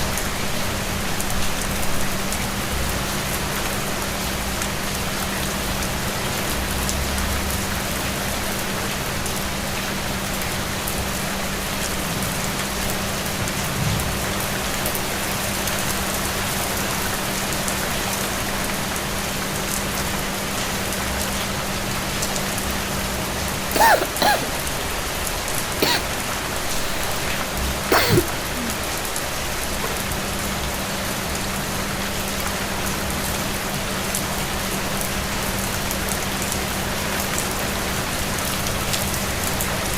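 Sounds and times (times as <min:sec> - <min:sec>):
brief pitched sounds: 0:25.8 - 0:26.1, 0:26.7 - 0:27.3, 0:27.9 - 0:28.3.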